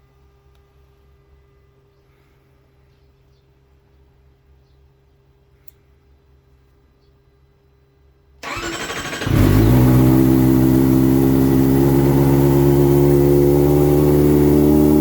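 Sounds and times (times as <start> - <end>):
motorcycle starter cranking: 8.4 - 11.3
motorcycle engine idling: 8.4 - 15.0.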